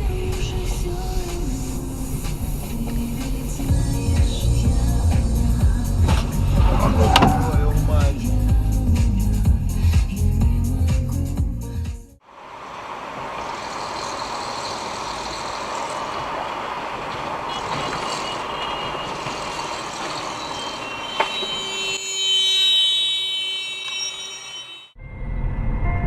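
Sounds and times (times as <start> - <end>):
car driving road noise: 0.0 - 9.3, 12.2 - 21.9
high-pitched tone: 20.0 - 25.3.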